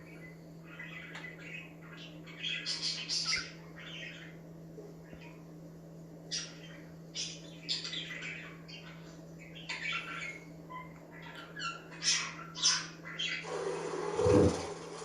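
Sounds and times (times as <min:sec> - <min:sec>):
budgerigars chirping: 0:06.3 - 0:13.5.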